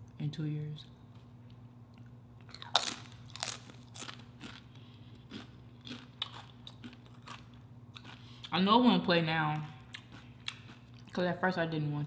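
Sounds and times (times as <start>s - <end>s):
tortilla chip crunching: 1.5s - 8.5s.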